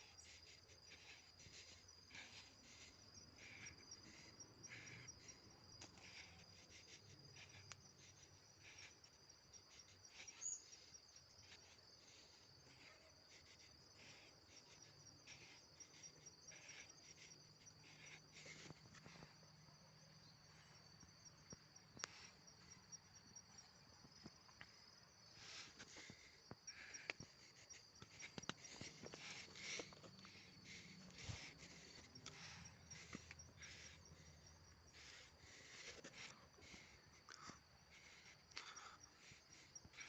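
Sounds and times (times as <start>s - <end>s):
insects chirping: 0.0s - 40.0s
soft clicks and scrapes: 28.0s - 30.3s.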